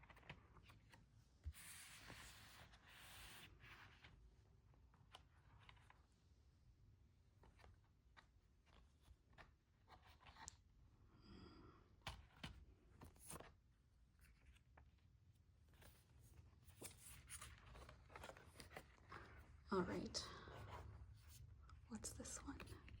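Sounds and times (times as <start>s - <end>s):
paper and plastic rustling: 15.6s - 19.6s.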